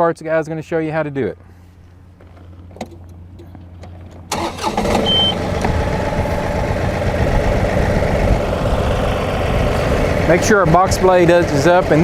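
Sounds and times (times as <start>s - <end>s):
tractor diesel engine starting and idling: 4.3s - 12.0s
short high beep: 4.9s - 5.5s.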